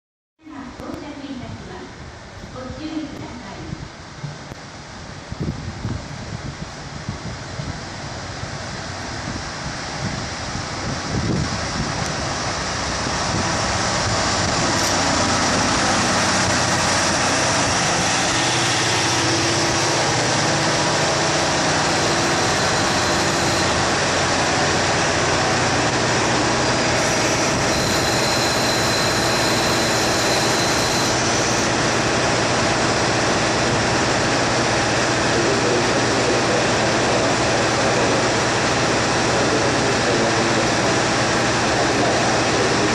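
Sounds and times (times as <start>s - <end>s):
diesel train engine: 0.6s - 42.9s
thin high tone: 13.1s - 32.5s.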